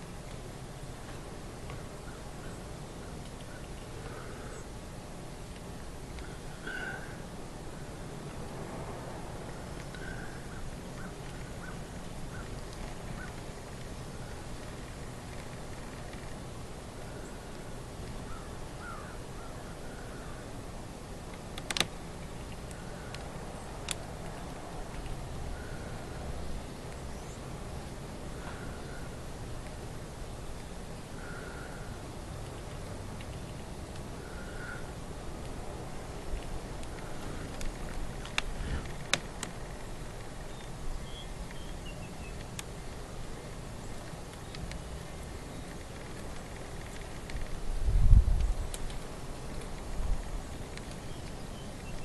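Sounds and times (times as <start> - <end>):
low wind rumble: 0.0 - 52.0
faint bird calls: 1.6 - 4.8, 6.1 - 8.0, 9.5 - 20.6, 22.3 - 23.8, 24.4 - 29.3, 30.5 - 32.7, 33.4 - 35.0, 36.9 - 42.6, 50.5 - 52.0
faint bird chirps: 2.0 - 4.7, 40.4 - 42.5, 51.0 - 52.0
sharp clicks: 21.3 - 25.2.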